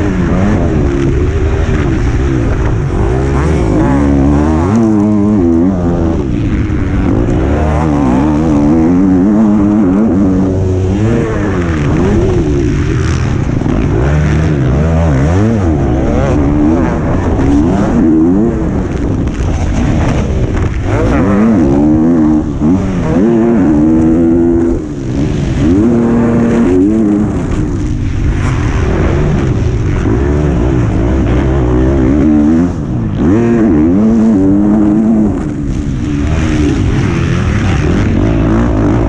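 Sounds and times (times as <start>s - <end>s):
motocross bike engine revving: 0.0s - 39.0s.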